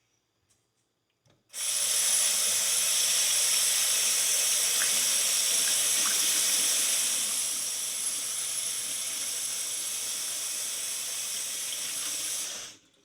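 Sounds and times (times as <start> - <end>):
water running from tap: 1.6 - 13.0.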